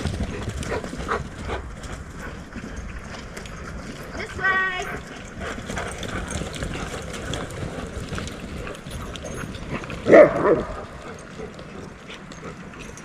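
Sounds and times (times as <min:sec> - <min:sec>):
footsteps and paws crunching on trail: 0:00.0 - 0:13.0
dog yelping: 0:10.1 - 0:10.8.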